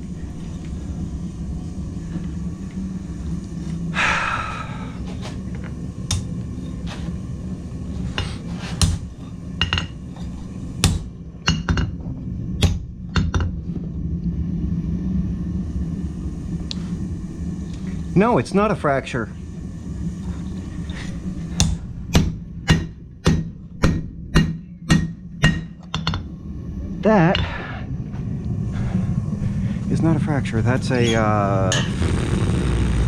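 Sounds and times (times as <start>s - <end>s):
steady low hum: 0.0s - 33.0s
hammer tapping on metal: 21.6s - 26.2s.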